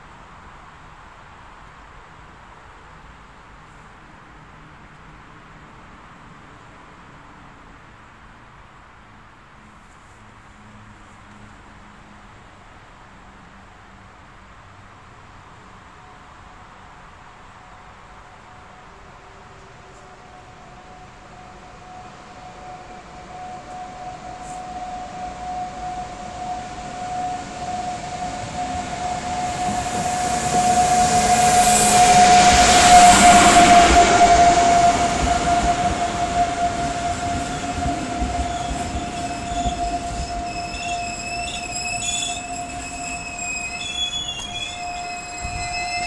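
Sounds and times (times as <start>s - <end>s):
passenger train running noise: 0.0s - 46.0s
steady whine: 19.4s - 46.0s
wheel and brake squeals: 19.4s - 46.0s.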